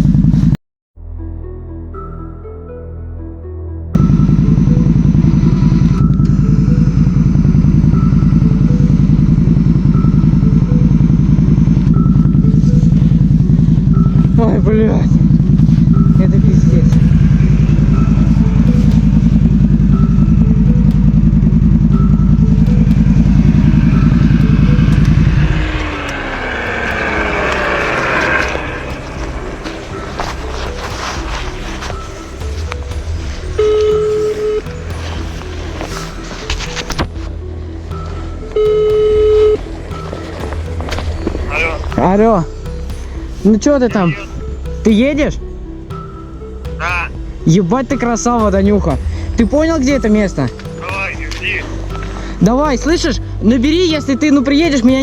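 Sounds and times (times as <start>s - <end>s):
faint falling whine: 4.0s - 43.0s
atv engine running: 4.0s - 55.0s
atv engine at high revs: 13.4s - 35.4s
hissing wash: 15.2s - 36.4s.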